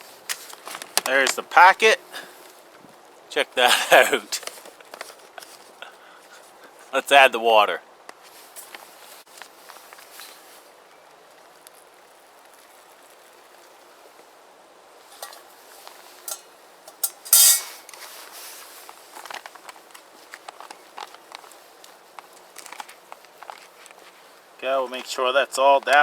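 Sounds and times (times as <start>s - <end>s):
foil pouch crinkling: 0.1s - 2.8s, 8.6s - 14.1s, 17.9s - 25.2s.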